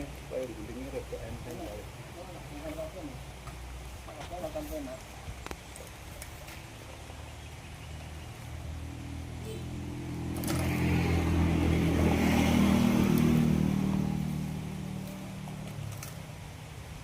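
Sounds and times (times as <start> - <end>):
engine running: 8.8 - 16.1.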